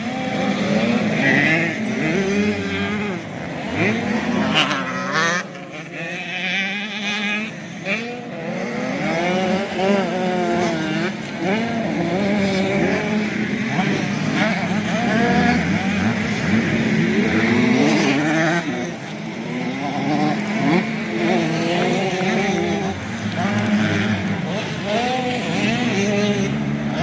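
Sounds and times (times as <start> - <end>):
motocross bike engines revving: 0.0 - 27.0.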